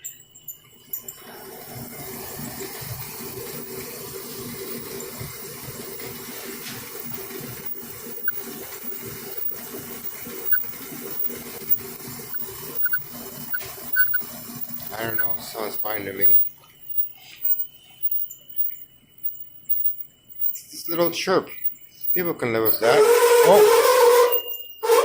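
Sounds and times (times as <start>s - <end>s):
clothes dryer running: 1.1s - 16.0s.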